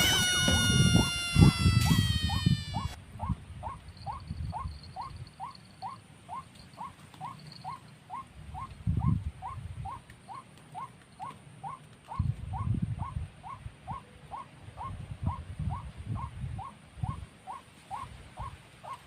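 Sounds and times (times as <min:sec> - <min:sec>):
wind rumbling on microphone: 0:00.0 - 0:05.4, 0:08.4 - 0:10.0, 0:12.1 - 0:14.0, 0:14.6 - 0:17.4
waterhen calling: 0:00.0 - 0:08.7.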